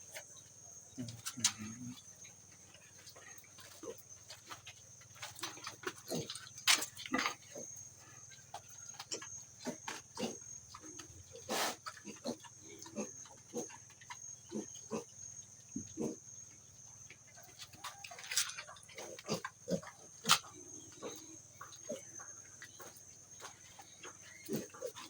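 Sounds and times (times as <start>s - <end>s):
pigs grunting: 0.9s - 2.2s, 5.4s - 8.2s, 9.0s - 15.2s, 15.8s - 16.2s, 18.3s - 22.9s, 24.0s - 25.0s.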